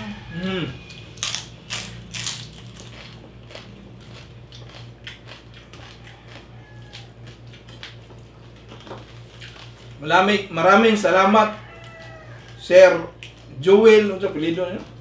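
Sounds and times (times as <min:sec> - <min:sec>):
low hum: 0:00.0 - 0:11.2
crispy skin crunching: 0:01.1 - 0:10.0.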